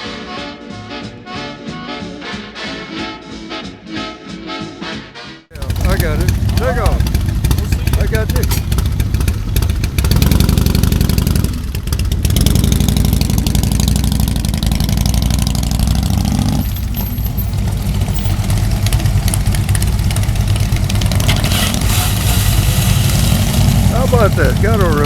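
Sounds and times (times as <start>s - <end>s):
motorcycle engines idling and revving: 5.5s - 25.0s.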